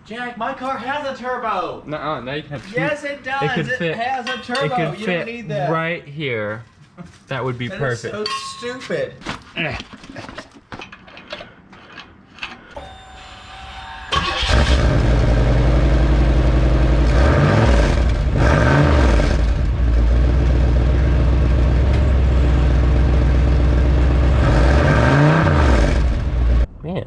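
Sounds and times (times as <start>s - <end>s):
car engine starting: 14.0s - 26.7s
car engine idling and revving: 14.1s - 26.7s.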